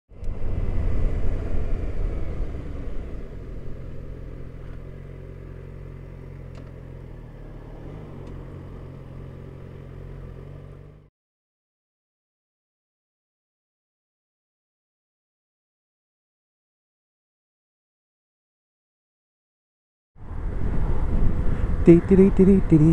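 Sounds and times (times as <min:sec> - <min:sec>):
motorcycle engine running: 0:00.2 - 0:11.1.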